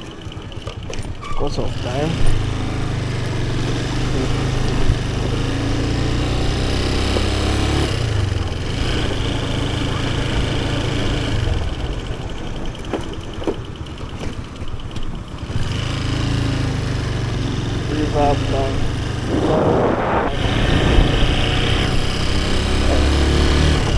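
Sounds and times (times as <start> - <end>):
motorcycle engine drone: 0.0 - 23.9.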